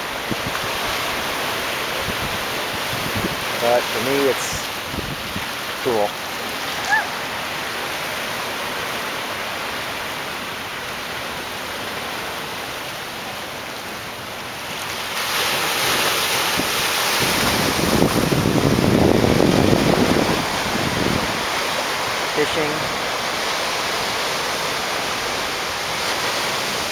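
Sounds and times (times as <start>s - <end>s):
surf washing against rocks: 0.0s - 26.9s
wind buffeting microphone: 0.1s - 1.3s, 2.0s - 3.6s, 4.6s - 5.6s, 16.4s - 21.7s.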